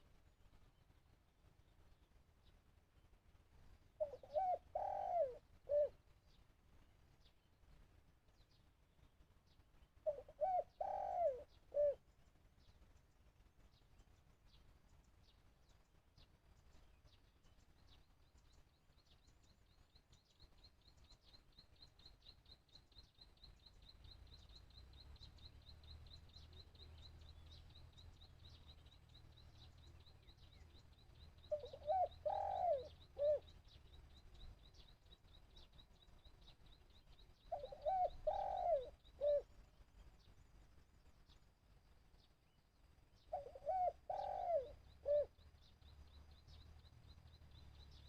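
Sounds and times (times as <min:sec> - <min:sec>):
dove cooing: 0:04.0 - 0:06.0, 0:10.0 - 0:12.0, 0:31.4 - 0:33.5, 0:37.5 - 0:39.5, 0:43.3 - 0:45.4.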